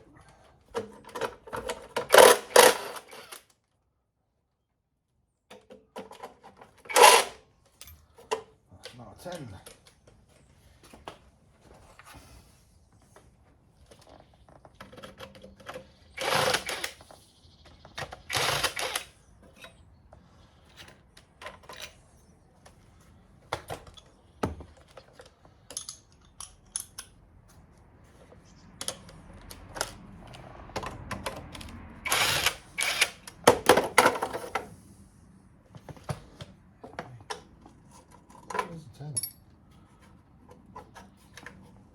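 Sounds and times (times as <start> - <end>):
metal hand tools clinking: 39.1 - 39.5.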